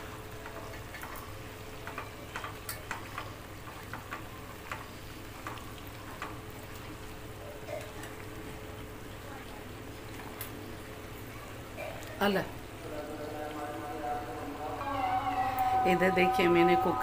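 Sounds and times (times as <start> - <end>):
meat sizzling: 0.0 - 11.8.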